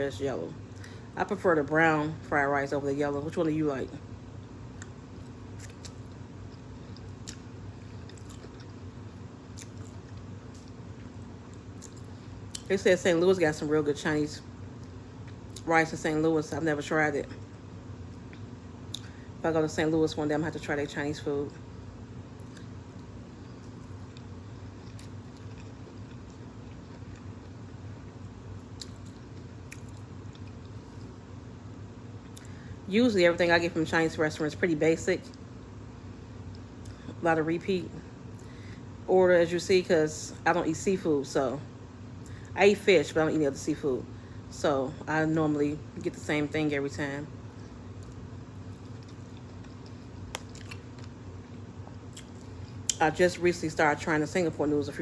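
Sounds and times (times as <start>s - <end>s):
steady low hum: 0.0s - 55.0s
person chewing food: 4.7s - 12.7s, 22.3s - 31.2s, 47.5s - 53.0s.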